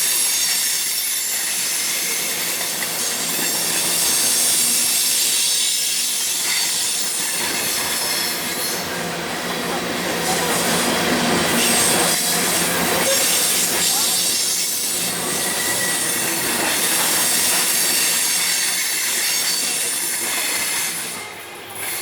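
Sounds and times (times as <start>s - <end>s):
railroad cars rolling past: 0.0s - 22.0s
wheels squealing on rail: 0.0s - 22.0s.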